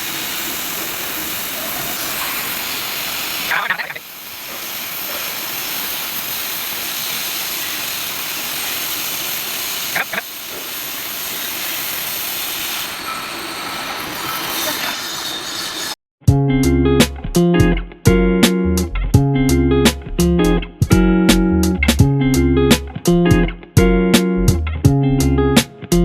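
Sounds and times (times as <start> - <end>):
cutting torch hissing on steel pipe: 0.0 - 16.0.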